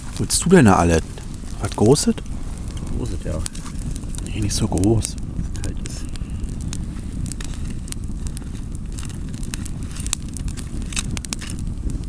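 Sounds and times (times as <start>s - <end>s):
campfire crackling and popping: 0.0s - 12.0s
low steady fire rumble: 0.0s - 12.0s.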